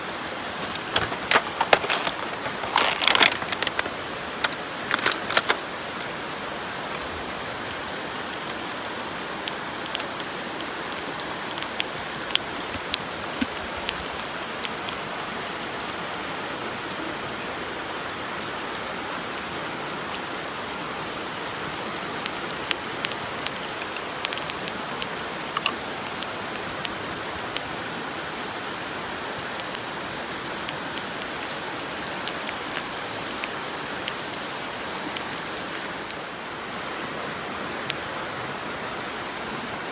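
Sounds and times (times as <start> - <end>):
fat popping and spitting: 0.6 - 5.6.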